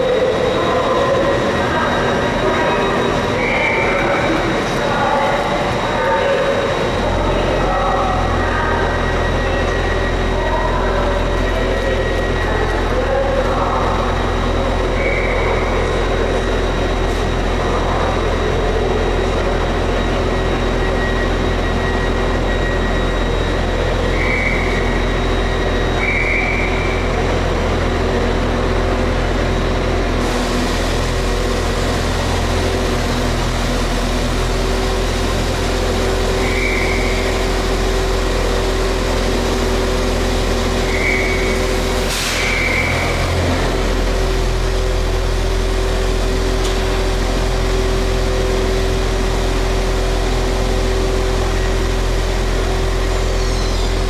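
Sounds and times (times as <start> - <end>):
train engine idling hum: 0.0 - 54.0
air hiss: 42.1 - 42.6.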